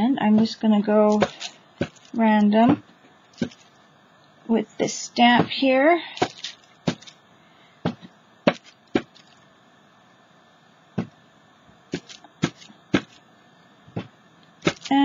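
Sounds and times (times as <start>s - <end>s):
hand stamp tapping on canvas: 12.0s - 13.2s.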